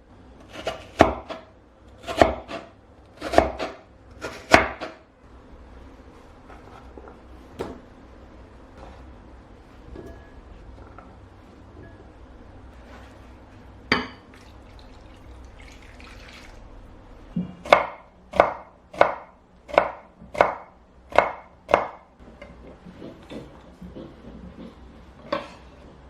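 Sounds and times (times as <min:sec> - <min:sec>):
knife chopping on cutting board: 0:00.5 - 0:05.0, 0:17.6 - 0:22.0.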